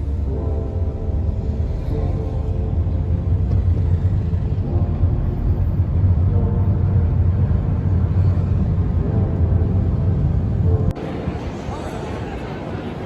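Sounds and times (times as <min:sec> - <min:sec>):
loud low rumble: 0:00.0 - 0:11.7.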